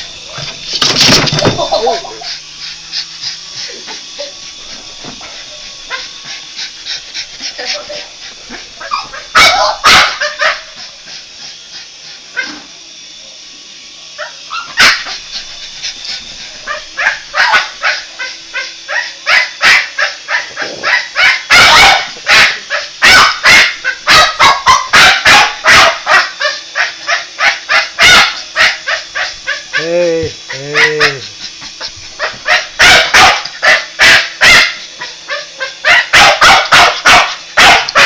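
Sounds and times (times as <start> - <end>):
dog barking and yipping: 5.2 - 6.2, 8.5 - 10.9, 14.2 - 15.2, 16.6 - 38.0.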